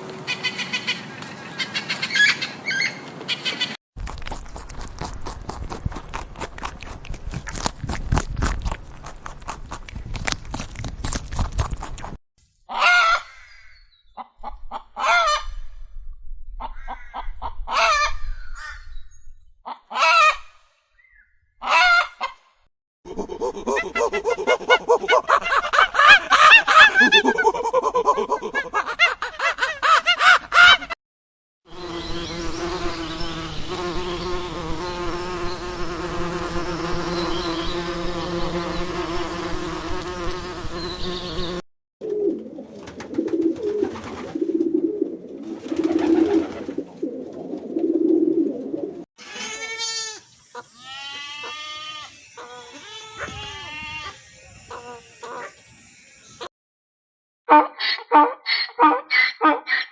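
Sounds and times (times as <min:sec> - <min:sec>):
honking fowl calls: 0:12.7 - 0:13.4, 0:19.7 - 0:20.4, 0:21.6 - 0:22.4
drone of overlapping animal voices: 0:50.5 - 0:55.8.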